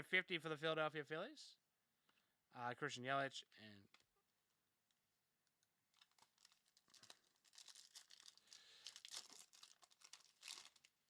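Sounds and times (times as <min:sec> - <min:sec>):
trading cards and wrapper crinkling: 0:05.9 - 0:11.0.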